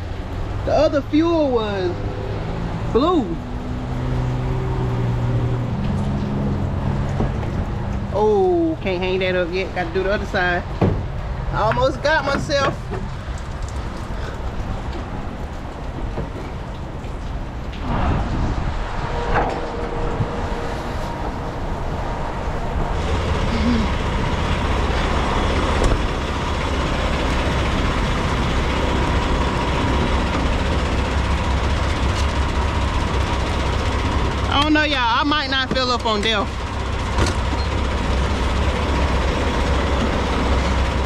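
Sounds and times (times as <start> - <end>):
fuel pump hum: 0.0 - 41.0
diesel engine idling: 19.7 - 41.0.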